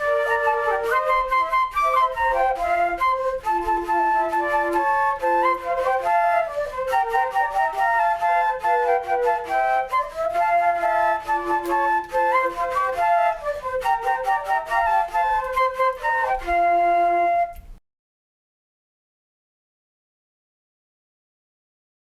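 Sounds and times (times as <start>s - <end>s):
flute ensemble playing: 0.0s - 17.8s.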